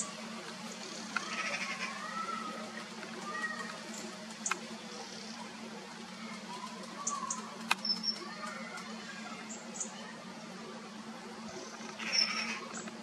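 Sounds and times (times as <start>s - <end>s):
low hum: 0.0s - 13.0s
small birds chirping and whistling: 6.2s - 10.1s, 11.5s - 13.0s
sharp clicks: 7.6s - 8.9s.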